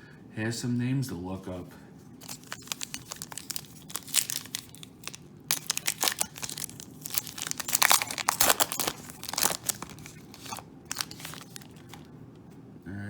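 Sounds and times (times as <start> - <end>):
foil pack crinkling: 2.2 - 12.1.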